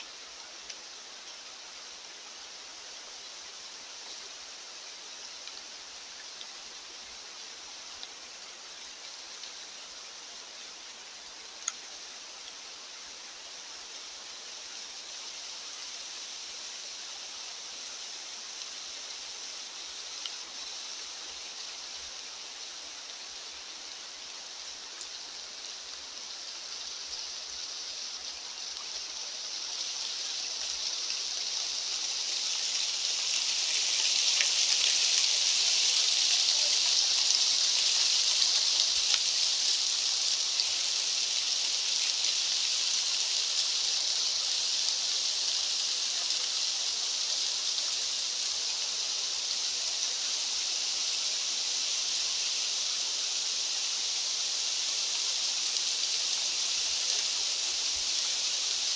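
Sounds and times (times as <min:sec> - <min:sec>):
rushing hiss of outdoor ambience: 0:00.0 - 0:58.9.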